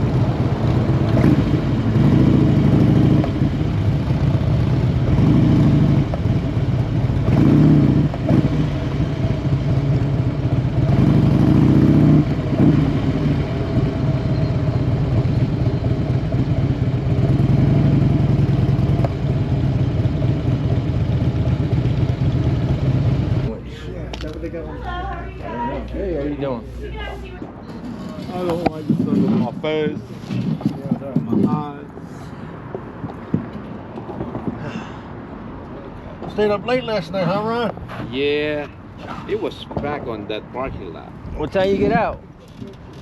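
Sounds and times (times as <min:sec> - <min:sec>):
motorcycle engine revving: 0:00.0 - 0:23.6.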